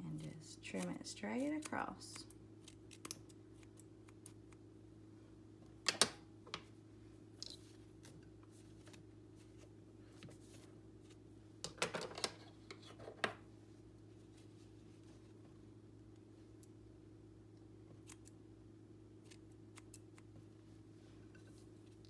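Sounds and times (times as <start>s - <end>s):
faint steady hum: 0.0s - 22.0s
scissors snipping hair: 0.1s - 4.6s, 18.0s - 18.4s, 19.2s - 20.3s.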